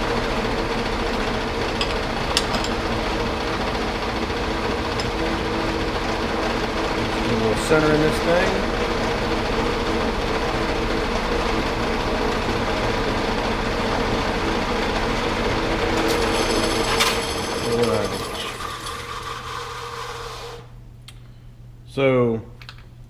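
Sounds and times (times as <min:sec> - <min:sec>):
metal lathe humming: 0:00.0 - 0:20.8
drill cutting steel: 0:15.5 - 0:20.7.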